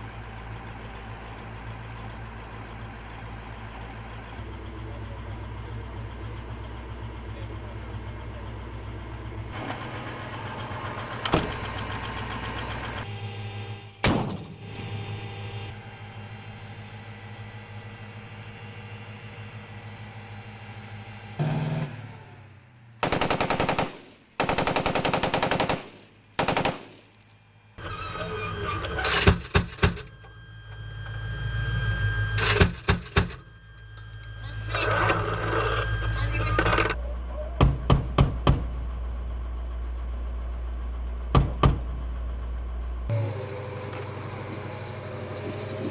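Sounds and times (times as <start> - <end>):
armored vehicle engine idling: 0.0 - 45.9
turret equipment whine: 0.0 - 45.9
chain gun firing bursts: 23.0 - 27.1.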